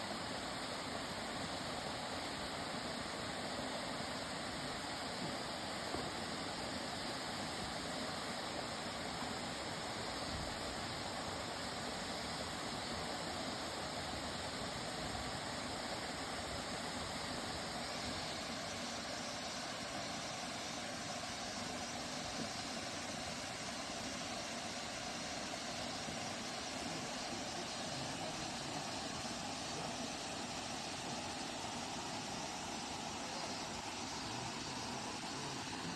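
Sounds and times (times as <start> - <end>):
waterfall rushing: 24.3 - 35.9.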